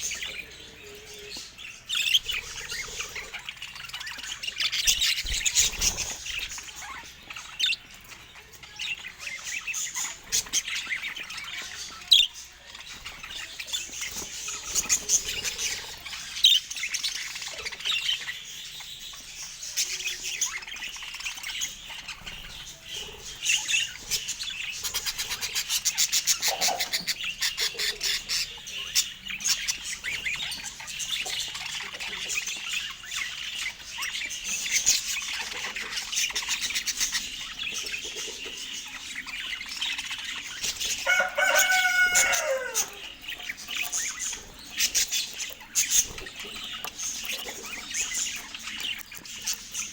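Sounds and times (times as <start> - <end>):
budgerigars chattering: 0.0 - 49.9.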